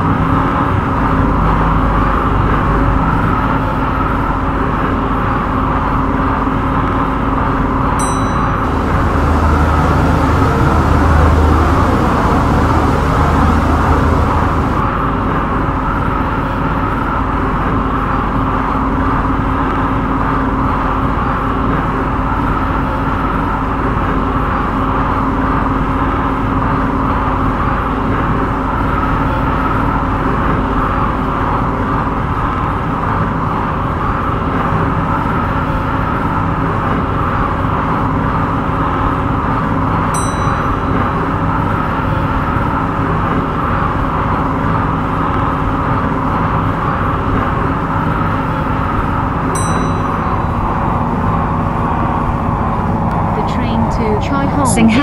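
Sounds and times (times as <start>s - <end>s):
deeper hum: 0.0s - 4.8s, 8.0s - 15.5s, 48.6s - 55.0s
train rolling and traction hum: 0.0s - 55.0s.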